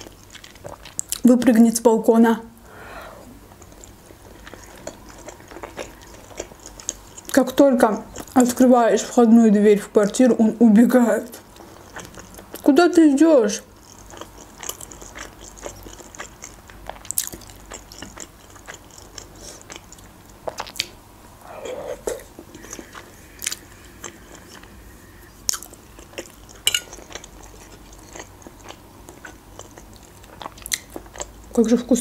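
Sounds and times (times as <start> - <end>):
person chewing: 0.0 - 1.2, 3.0 - 7.4, 8.0 - 8.6, 11.4 - 12.7, 13.6 - 31.5.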